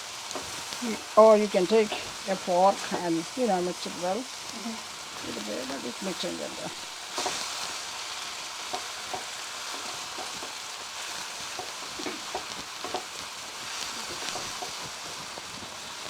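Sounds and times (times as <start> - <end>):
noodles sizzling in a hot pan: 0.0 - 16.0
utensils clicking against pan: 5.3 - 7.8, 8.5 - 15.8.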